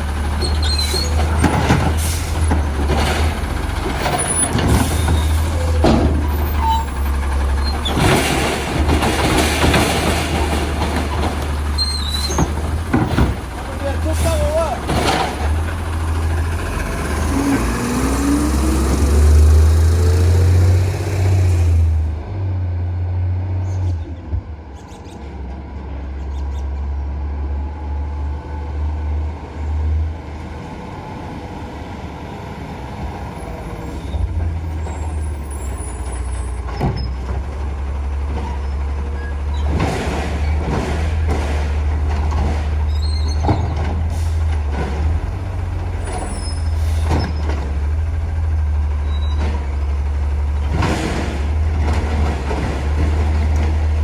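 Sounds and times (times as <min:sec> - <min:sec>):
knocks and clanks: 0:00.0 - 0:17.7, 0:36.0 - 0:48.5, 0:49.2 - 0:54.0
truck engine rumbling: 0:00.0 - 0:54.0.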